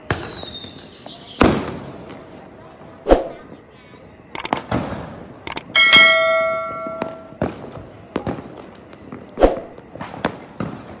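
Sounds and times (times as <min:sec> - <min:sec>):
fireworks bangs and pops: 0:00.0 - 0:02.5, 0:04.5 - 0:05.4, 0:06.8 - 0:11.0
ringing bell-like tone: 0:05.8 - 0:07.4.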